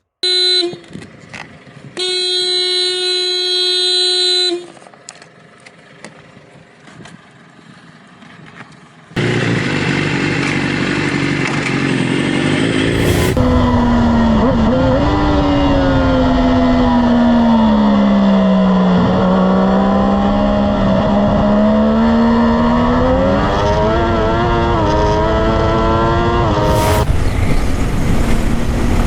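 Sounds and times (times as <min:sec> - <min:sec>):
motorcycle riding with wind rush: 0:05.2 - 0:29.0
long horn blast: 0:12.6 - 0:17.8.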